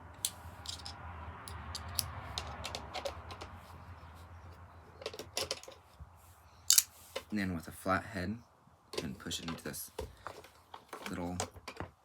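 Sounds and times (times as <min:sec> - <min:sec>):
screwdriver clicking and scraping: 0:00.2 - 0:00.9, 0:01.5 - 0:03.6, 0:06.7 - 0:07.3.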